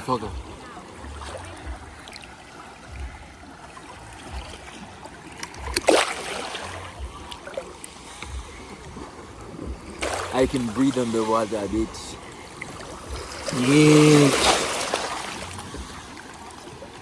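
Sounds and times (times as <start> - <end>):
seawater lapping and trickling: 0.0 - 17.0
water splash: 0.0 - 17.0.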